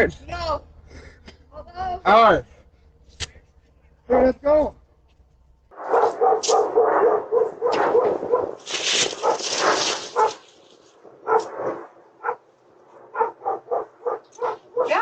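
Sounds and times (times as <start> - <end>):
dog barking: 5.8 - 8.6, 9.2 - 10.4, 11.2 - 12.5, 13.1 - 15.0.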